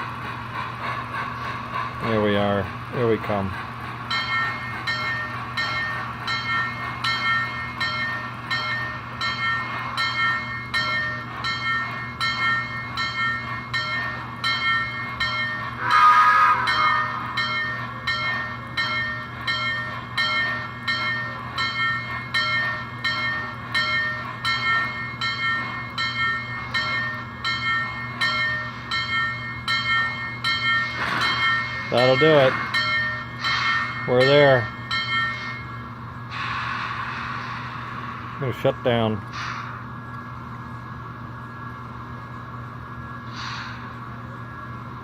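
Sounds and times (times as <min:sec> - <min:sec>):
model steam locomotive chuffing: 0:00.0 - 0:40.8
tonal whistle blast: 0:15.8 - 0:17.4.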